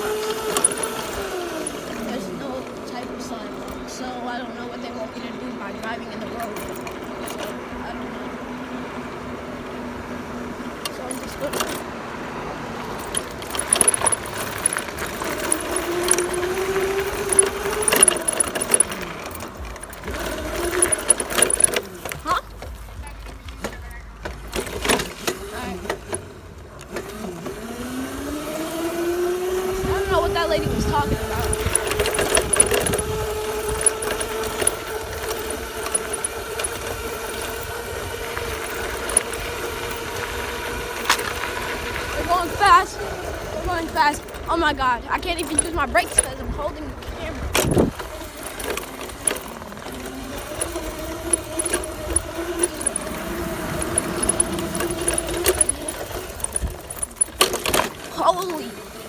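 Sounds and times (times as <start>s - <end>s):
loose parts rattling and clinking: 0.0s - 4.4s, 5.2s - 8.0s, 10.7s - 12.0s, 12.7s - 27.6s, 28.2s - 59.0s
dirt bike motor running: 0.0s - 59.0s
wind rumbling on microphone: 29.6s - 57.1s.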